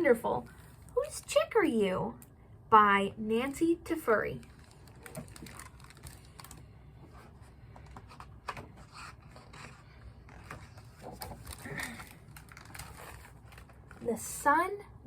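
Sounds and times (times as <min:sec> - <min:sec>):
low room hum: 0:00.0 - 0:15.0
paper scraping: 0:08.0 - 0:13.4.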